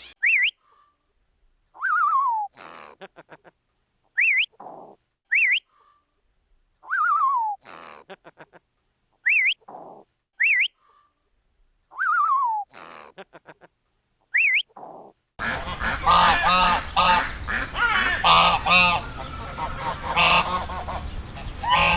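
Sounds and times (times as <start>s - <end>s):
bird harsh rasp: 0.0s - 0.5s
bird whistled calls: 0.0s - 0.6s, 4.2s - 4.5s, 5.3s - 5.6s, 9.3s - 9.6s, 10.4s - 10.7s, 14.4s - 14.6s.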